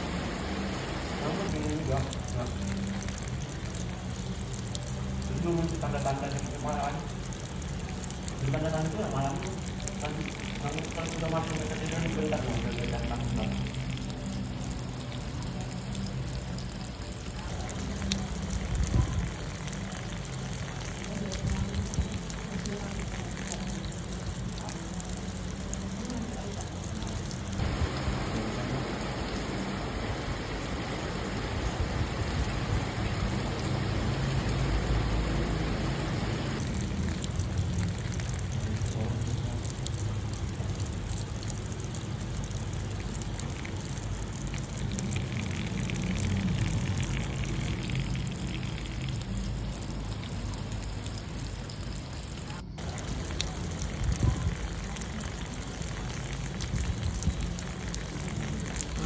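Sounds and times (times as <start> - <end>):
light rain falling: 0.0 - 59.0
low hum: 27.4 - 38.0.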